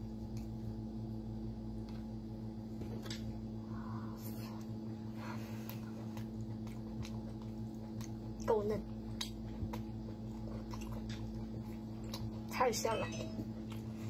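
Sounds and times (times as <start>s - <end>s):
steady low hum: 0.0s - 14.0s
wet chewing clicks: 5.7s - 12.6s.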